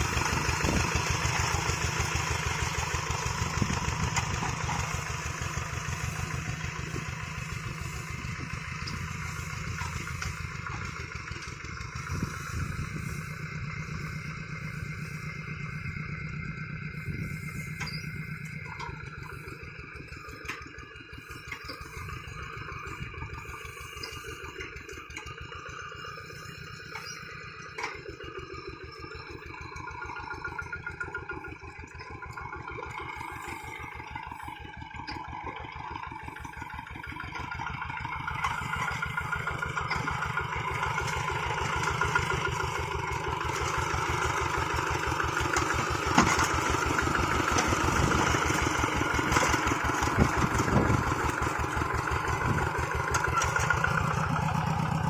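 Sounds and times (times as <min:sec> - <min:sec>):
tractor engine chugging: 0:00.0 - 0:55.0.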